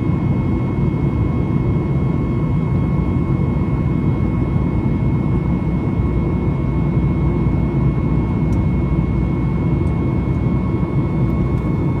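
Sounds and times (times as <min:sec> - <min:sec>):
airplane cabin engine rumble and whine: 0:00.0 - 0:12.0.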